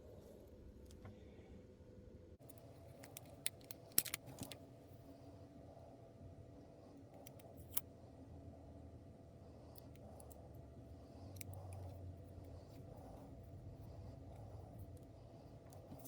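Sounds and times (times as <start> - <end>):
low room hum: 0.0 - 16.0
plastic miniatures clicking: 3.0 - 4.6.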